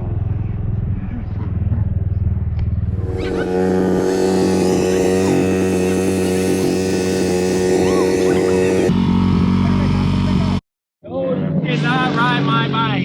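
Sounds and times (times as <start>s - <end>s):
dirt bike engine running: 2.6s - 10.5s.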